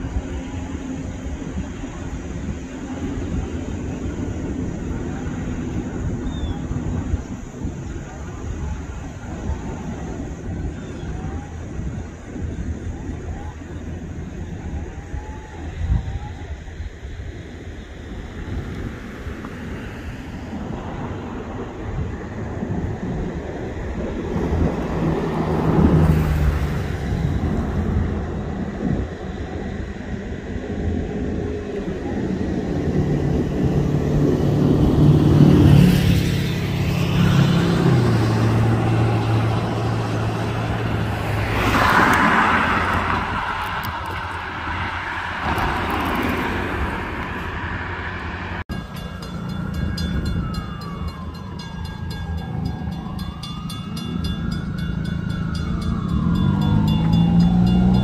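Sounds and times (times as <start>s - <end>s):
diesel locomotive engine drone: 0.0s - 58.0s
rail and wheel noise: 0.0s - 58.0s
gliding high tone: 38.5s - 58.0s.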